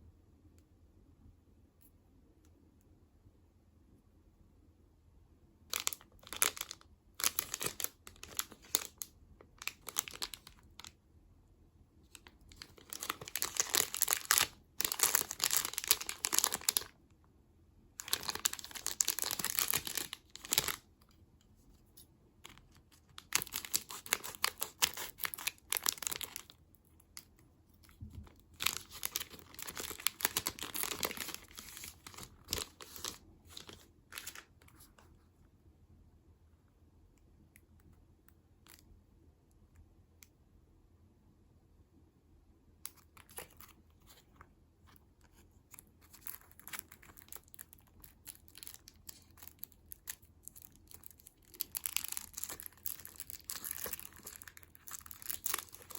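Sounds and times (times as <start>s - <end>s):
snack packaging crinkling: 5.7s - 11.0s, 12.1s - 17.0s, 18.0s - 20.9s, 22.4s - 34.8s, 42.9s - 44.4s, 45.3s - 55.9s.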